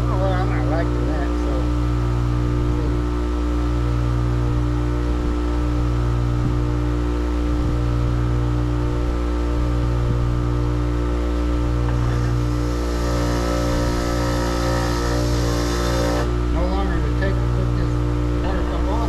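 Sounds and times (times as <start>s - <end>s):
machine motor humming: 11.9s - 16.6s.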